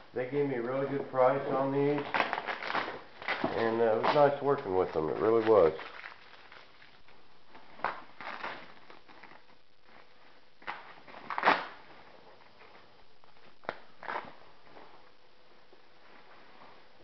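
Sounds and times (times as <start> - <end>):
packaging rustling: 1.7 - 15.0.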